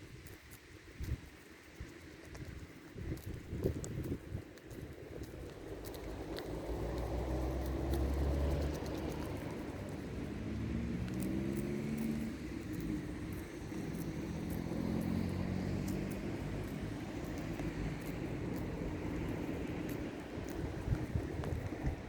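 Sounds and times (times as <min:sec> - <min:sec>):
vehicle engine running: 0:05.7 - 0:22.0.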